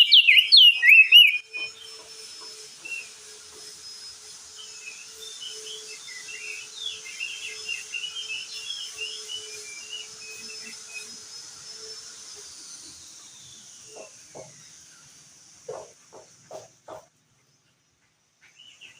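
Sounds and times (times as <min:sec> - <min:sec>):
bird twittering song: 0:00.0 - 0:02.1, 0:04.6 - 0:11.2, 0:17.4 - 0:18.9.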